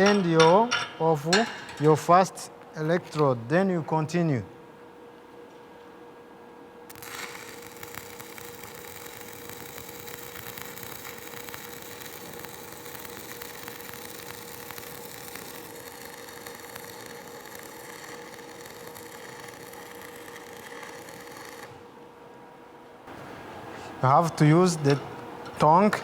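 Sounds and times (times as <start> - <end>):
welding arc crackling and sizzling: 6.9 - 21.9.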